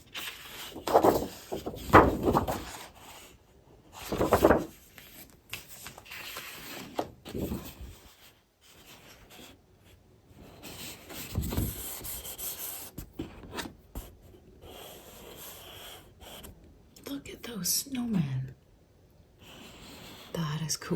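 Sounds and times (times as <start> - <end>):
paper rustling and crinkling: 0.0 - 9.4, 10.6 - 12.2.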